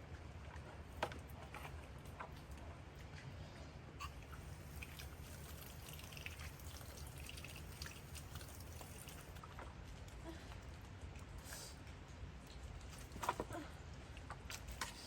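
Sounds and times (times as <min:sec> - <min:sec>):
rain dripping: 0:04.2 - 0:10.1.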